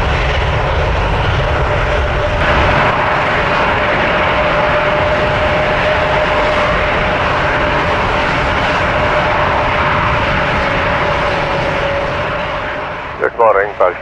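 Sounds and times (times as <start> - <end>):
jet engines at takeoff: 0.0 - 14.0.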